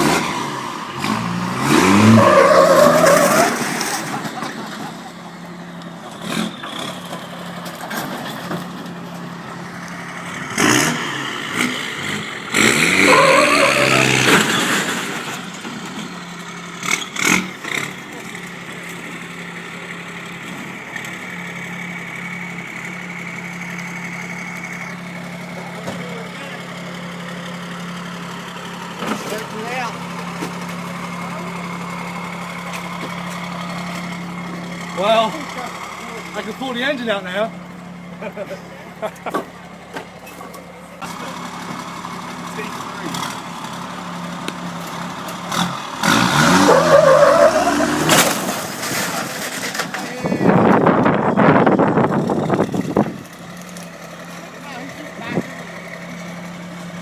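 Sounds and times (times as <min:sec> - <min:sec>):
vehicle engine revving hard: 0:00.0 - 0:04.4, 0:10.3 - 0:15.4, 0:16.8 - 0:18.4, 0:45.5 - 0:49.6
tyres squealing: 0:01.8 - 0:03.6, 0:12.9 - 0:14.7, 0:46.2 - 0:48.4
diesel engine idling: 0:04.1 - 0:10.6, 0:18.0 - 0:47.9, 0:49.3 - 0:57.0
sharp crack: 0:47.9 - 0:50.2.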